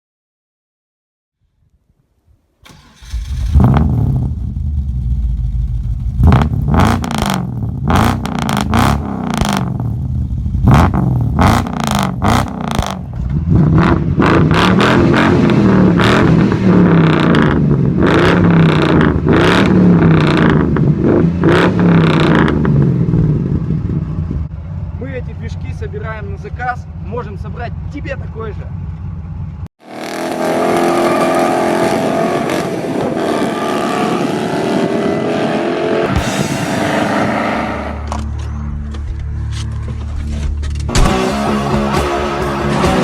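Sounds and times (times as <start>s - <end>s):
engine revving: 2.6s - 23.9s, 29.8s - 38.5s.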